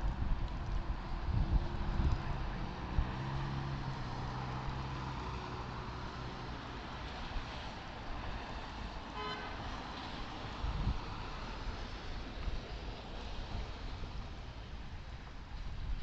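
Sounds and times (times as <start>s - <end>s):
traffic road and engine noise: 0.0s - 16.0s
car horn honking: 9.1s - 9.7s.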